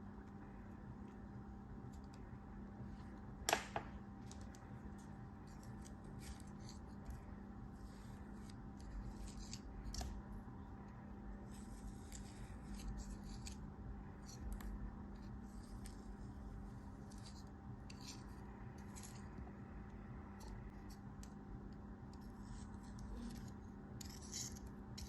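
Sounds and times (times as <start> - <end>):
steady low hum: 0.0 - 25.0
blade cutting soap: 22.1 - 25.0.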